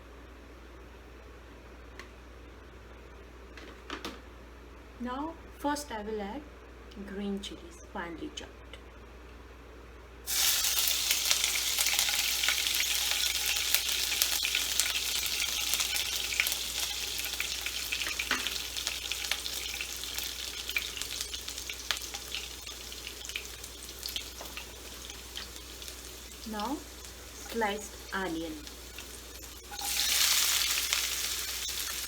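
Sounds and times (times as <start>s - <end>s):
chilies sizzling in hot oil: 10.3s - 32.0s.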